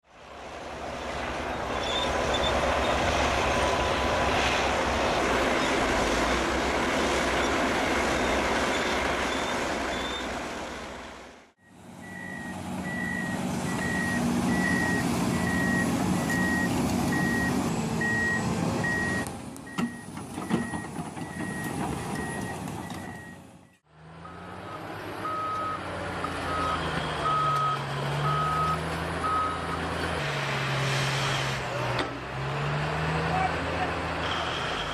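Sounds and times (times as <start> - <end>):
heavy machinery engines: 0.2 - 34.9
reversing alarm beeping: 11.6 - 25.8, 26.4 - 29.7.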